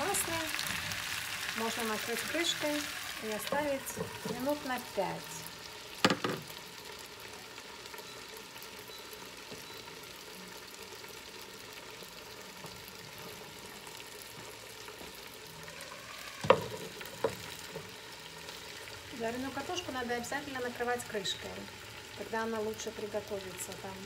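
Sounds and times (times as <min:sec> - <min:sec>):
potatoes frying in oil: 0:00.0 - 0:24.0.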